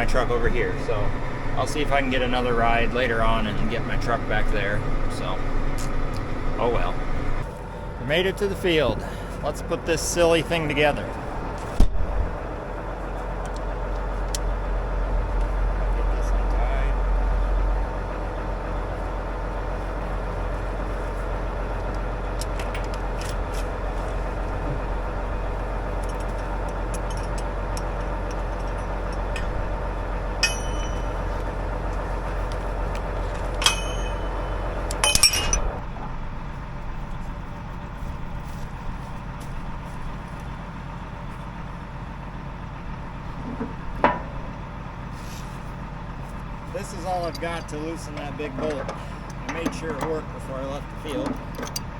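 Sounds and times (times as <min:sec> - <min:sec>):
vehicle engine idling: 0:00.0 - 0:51.9
metallic clinks of tools: 0:30.4 - 0:31.5, 0:33.5 - 0:35.7.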